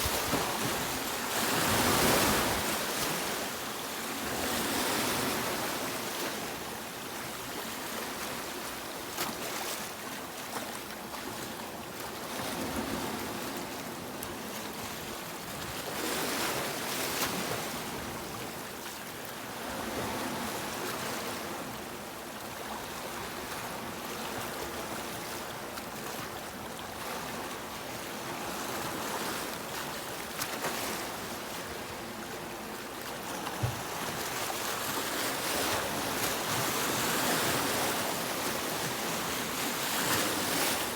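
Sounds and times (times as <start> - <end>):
sea waves breaking on beach: 0.0 - 6.7, 28.2 - 40.9.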